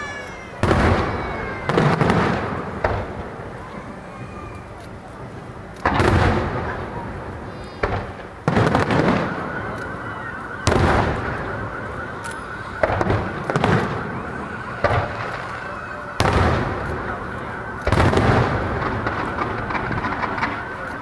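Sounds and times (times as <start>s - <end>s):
firework shells booming: 0.3s - 21.0s
rumble after firework bursts: 0.6s - 21.0s
small firework pop: 7.7s - 8.7s.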